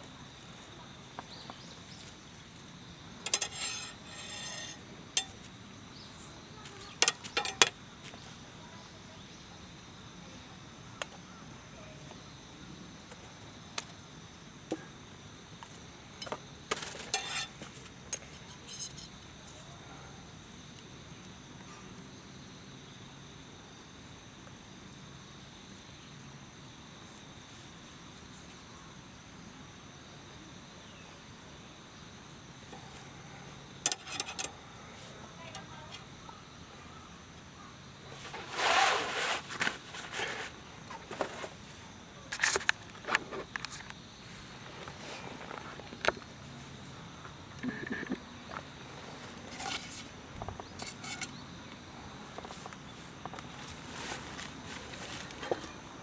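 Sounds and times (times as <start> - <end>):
insects trilling: 0.0 - 56.0
metal camp gear clinking: 3.2 - 5.6, 6.7 - 7.8, 16.2 - 19.2, 33.8 - 34.8, 35.4 - 36.0, 38.1 - 41.6, 42.3 - 43.8, 49.0 - 51.4, 53.4 - 55.9.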